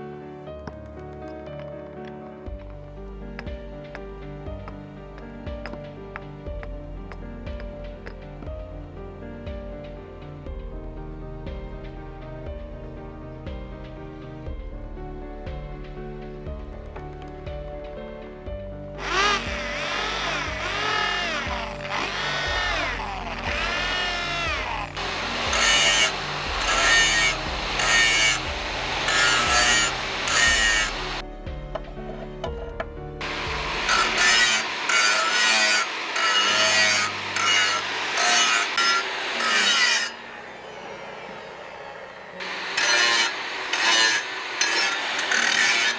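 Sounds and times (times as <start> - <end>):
background music: 0.0 - 45.9
spinning tool whining: 19.0 - 31.2, 33.2 - 45.9.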